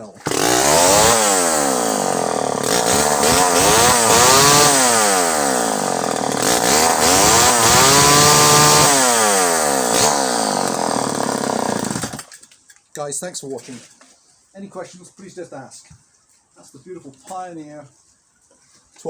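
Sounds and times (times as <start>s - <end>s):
chainsaw revving: 0.2s - 12.4s.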